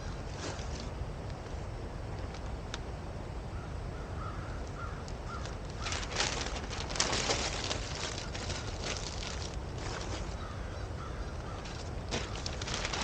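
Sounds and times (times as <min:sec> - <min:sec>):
low rumble of wind or water: 0:00.0 - 0:13.0
dry twigs crackling and rustling: 0:00.2 - 0:01.0, 0:04.2 - 0:13.0
bird calling: 0:03.5 - 0:06.4, 0:08.0 - 0:12.6.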